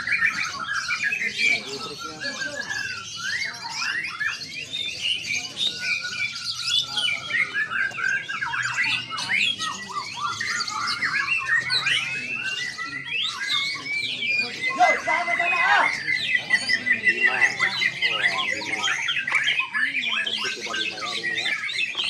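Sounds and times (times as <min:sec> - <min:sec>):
songbirds chorus: 0:00.0 - 0:22.0.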